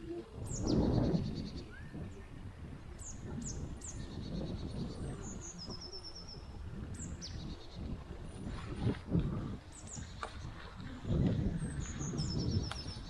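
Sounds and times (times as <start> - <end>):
birds chirping: 0.0 - 13.0
steady low rumble: 0.0 - 13.0.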